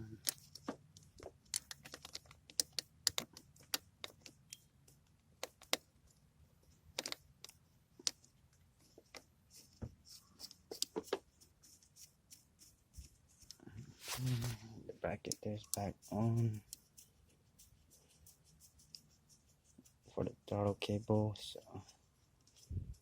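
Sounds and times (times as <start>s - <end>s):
light clicks and taps of parts: 0.2s - 13.6s, 15.2s - 20.0s.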